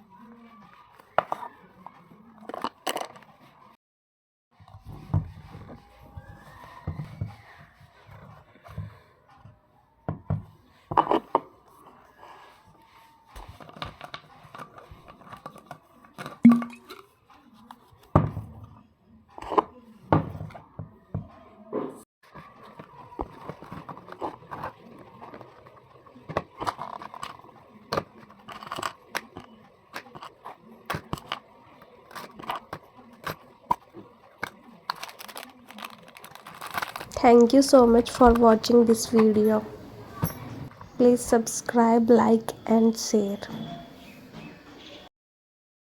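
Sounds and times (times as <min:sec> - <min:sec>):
clicks and knocks of items: 0:32.1 - 0:37.2
packaging tearing and rustling: 0:34.4 - 0:37.2.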